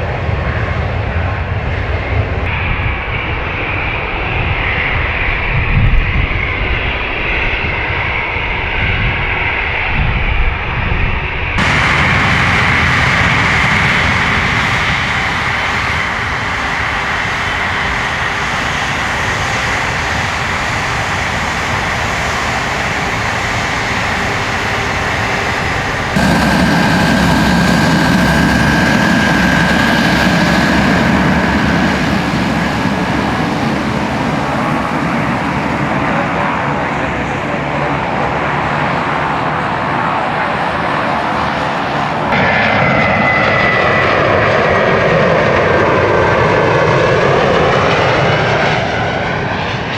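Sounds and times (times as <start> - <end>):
high engine whine: 11.6 - 42.7
jet engines running: 11.6 - 49.9.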